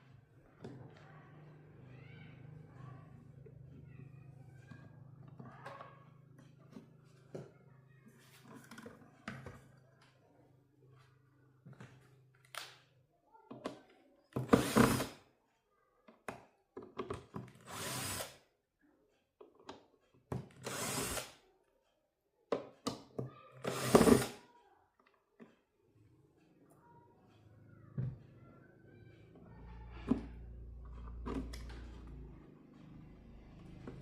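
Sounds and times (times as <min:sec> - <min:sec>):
handheld power tool running: 0:17.6 - 0:18.4, 0:20.6 - 0:21.4, 0:23.6 - 0:24.4.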